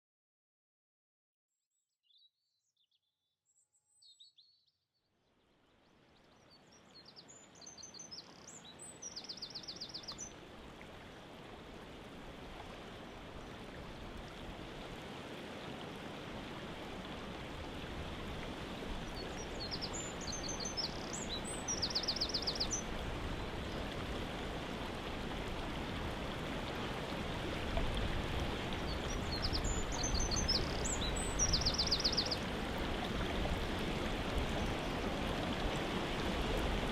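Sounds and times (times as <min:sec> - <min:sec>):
songbird singing with trill: 0:01.7 - 0:04.8, 0:19.1 - 0:22.9, 0:28.9 - 0:32.4.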